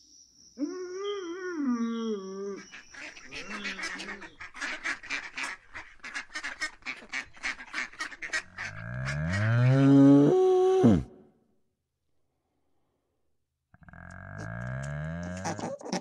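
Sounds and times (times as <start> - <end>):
duck quacking: 3.0 - 9.7.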